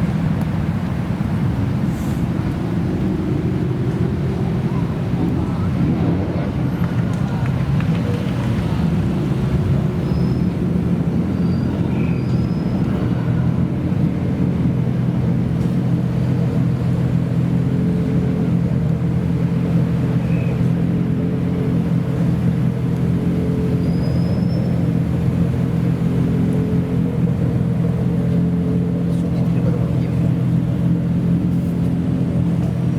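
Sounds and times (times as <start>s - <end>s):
car engine idling: 13.2s - 32.9s.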